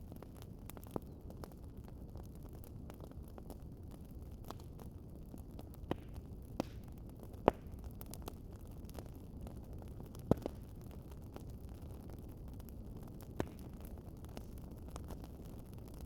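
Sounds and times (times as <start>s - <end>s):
wood fire crackling: 0.0s - 16.0s
sharp pops of fire: 5.8s - 8.3s, 10.1s - 10.8s, 12.6s - 16.0s.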